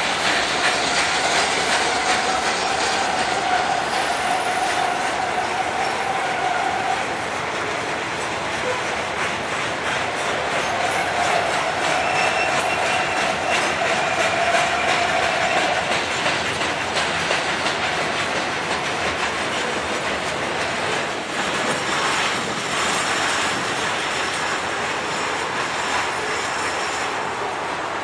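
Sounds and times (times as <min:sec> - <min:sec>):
freight train wheels clattering: 0:00.0 - 0:28.0
high wheel squeal: 0:00.2 - 0:07.2, 0:10.6 - 0:15.9.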